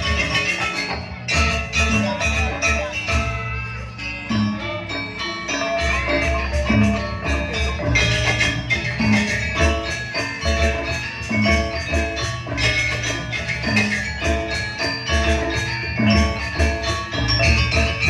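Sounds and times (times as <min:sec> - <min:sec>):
bronze metallophones playing: 0:00.0 - 0:18.0.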